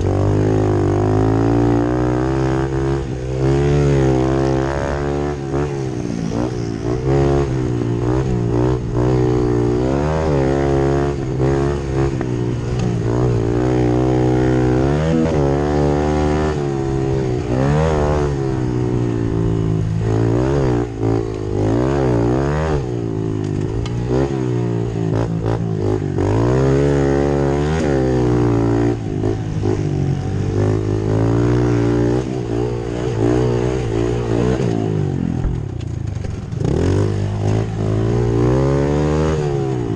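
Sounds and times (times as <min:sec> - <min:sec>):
pit bike engines revving: 0:00.0 - 0:39.9
steady engine note: 0:03.4 - 0:13.7.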